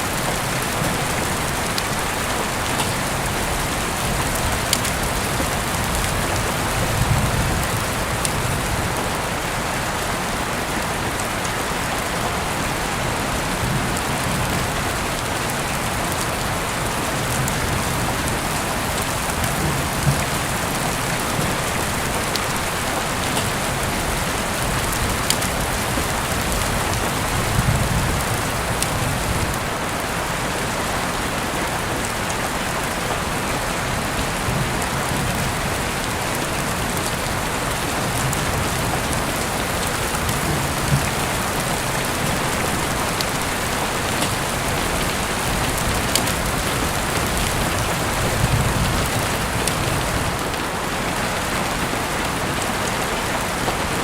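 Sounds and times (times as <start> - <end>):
heavy rain hiss: 0.0 - 54.0
rain drop ticks: 0.1 - 9.2, 17.1 - 29.6, 34.5 - 50.6.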